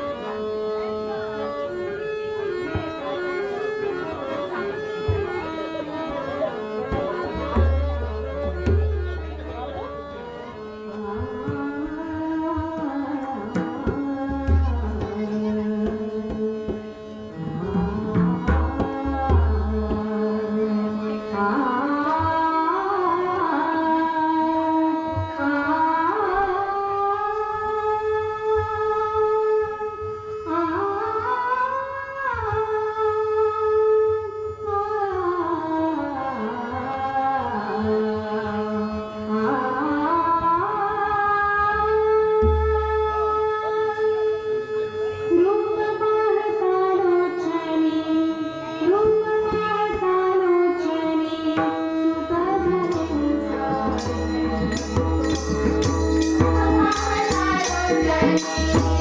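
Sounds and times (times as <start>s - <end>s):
hand drum strokes: 51.6s - 59.0s
sliding melody of held notes: 52.2s - 59.0s
steady drone: 52.8s - 59.0s.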